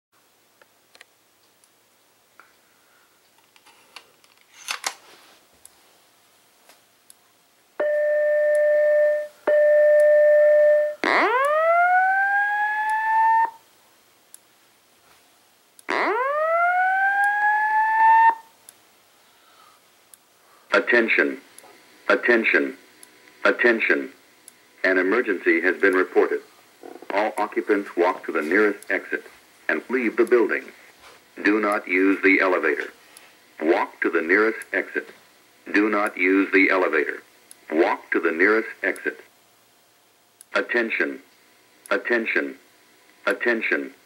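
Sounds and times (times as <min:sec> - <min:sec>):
fire alarm beeps: 0:07.8 - 0:13.6
fire alarm whoops rising in pitch: 0:07.8 - 0:13.6, 0:15.9 - 0:18.5.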